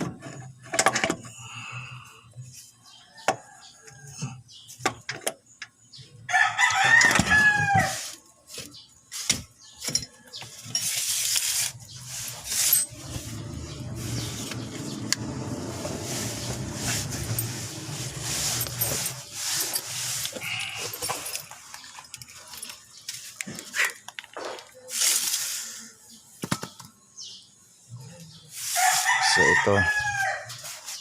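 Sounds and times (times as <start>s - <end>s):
rooster crowing: 6.3s - 8.1s, 28.7s - 30.5s
low hum with clatter: 12.8s - 19.2s.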